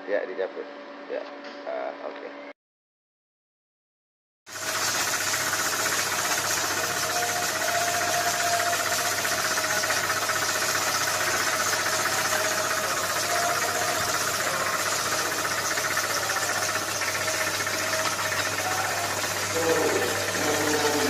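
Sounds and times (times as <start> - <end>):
electric motor whirring: 4.5 - 21.0.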